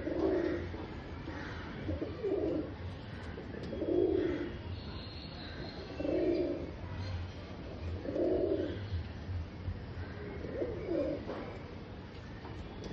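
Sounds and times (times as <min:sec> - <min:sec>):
pigeons cooing: 0:00.0 - 0:04.6, 0:05.9 - 0:06.8, 0:07.9 - 0:08.9, 0:10.3 - 0:11.6.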